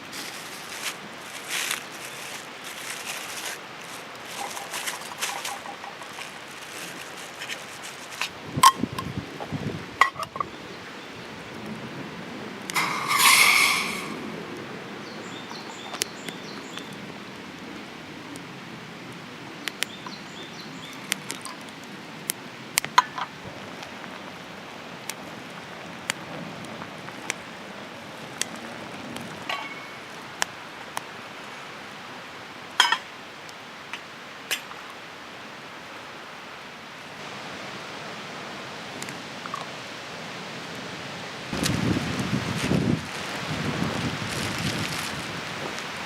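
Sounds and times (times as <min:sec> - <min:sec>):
steady outdoor hiss: 0:00.0 - 0:46.0.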